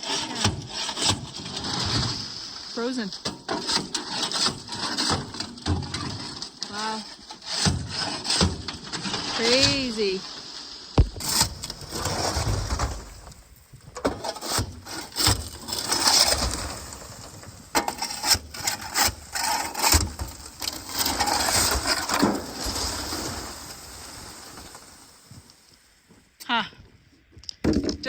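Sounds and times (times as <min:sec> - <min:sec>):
gritty crunching and scraping: 0:00.0 - 0:26.4
frozen sand cracking: 0:08.5 - 0:13.7, 0:14.3 - 0:26.1.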